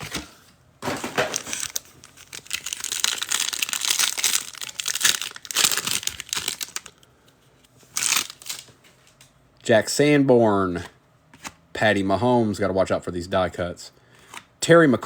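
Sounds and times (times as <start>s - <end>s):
plastic wrappers crinkling and tearing: 0.8s - 7.1s, 7.9s - 8.7s.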